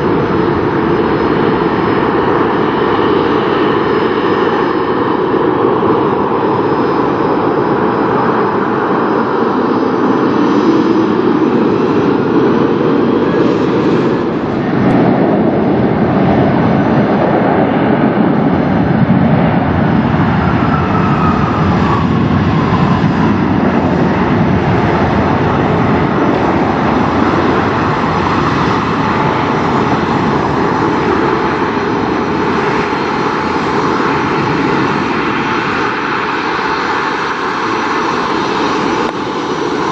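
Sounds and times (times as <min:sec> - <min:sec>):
jet engines roaring: 0:00.0 - 0:39.9.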